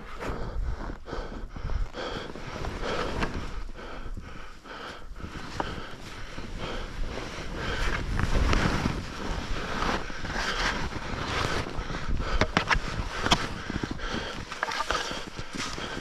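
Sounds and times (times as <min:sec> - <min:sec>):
wind buffeting microphone: 0:00.0 - 0:16.0
skis sliding through snow: 0:04.8 - 0:16.0
skis scraping and clicking: 0:05.3 - 0:16.0.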